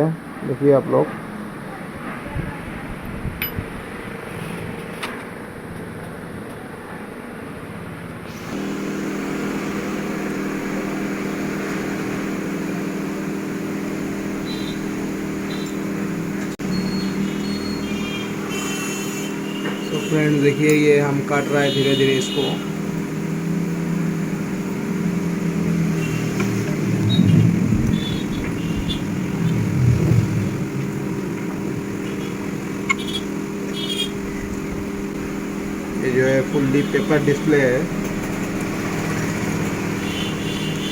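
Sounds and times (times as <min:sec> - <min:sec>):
small electric motor humming: 0:08.4 - 0:40.9.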